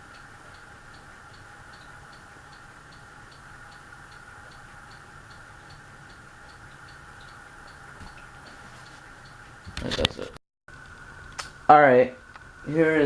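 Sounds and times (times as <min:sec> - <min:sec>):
mechanical ticking: 0:00.0 - 0:09.8
electrical hum: 0:00.0 - 0:13.0.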